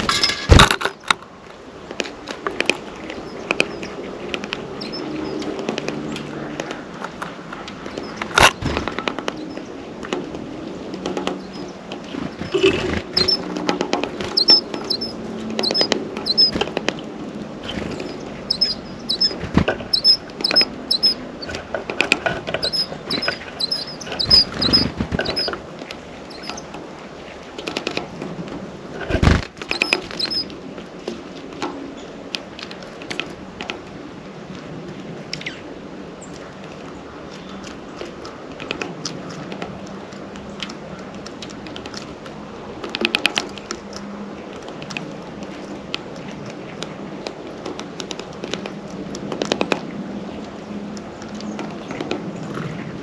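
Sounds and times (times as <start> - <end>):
birds pecking at feeder: 1.9 - 33.9
bird chirping: 4.8 - 6.2, 11.4 - 13.6, 14.2 - 16.6, 17.7 - 21.6, 22.5 - 25.6, 26.3 - 26.7, 29.7 - 30.5.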